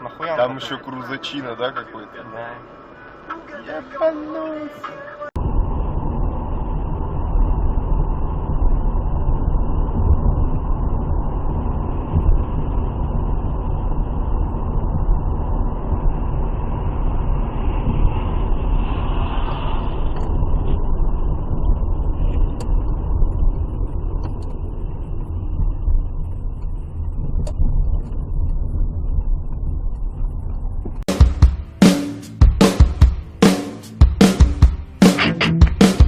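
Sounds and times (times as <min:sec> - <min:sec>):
car road and engine noise: 0:00.0 - 0:35.1
hiss: 0:17.6 - 0:20.6.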